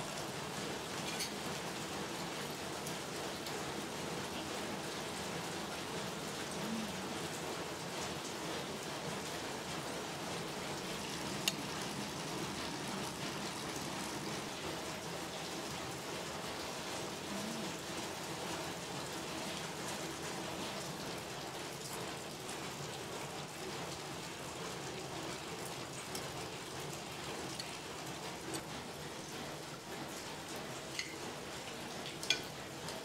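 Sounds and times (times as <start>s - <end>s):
steady rain hiss: 0.0s - 33.0s.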